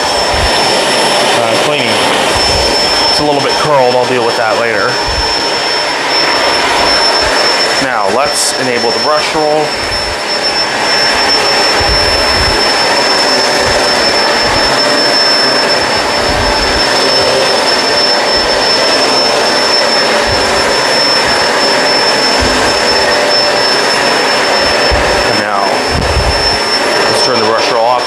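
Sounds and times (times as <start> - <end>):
upright vacuum cleaner running: 0.0 - 28.0
vacuum high-pitched whine: 0.0 - 28.0
vacuum head thudding: 8.6 - 27.0.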